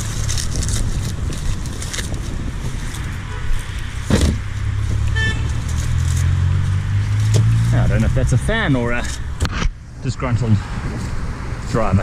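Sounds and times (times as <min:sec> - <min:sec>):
highway traffic passing: 0:00.0 - 0:12.0
vehicle engine drone: 0:00.0 - 0:12.0
car horn toot: 0:03.3 - 0:03.6, 0:05.1 - 0:05.6
thump: 0:04.1 - 0:04.4.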